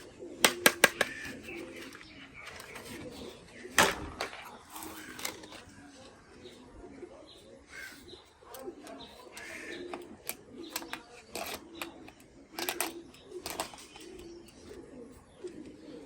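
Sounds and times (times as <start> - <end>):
bird cooing: 0.0 - 16.0
sharp clicks: 8.5 - 14.8.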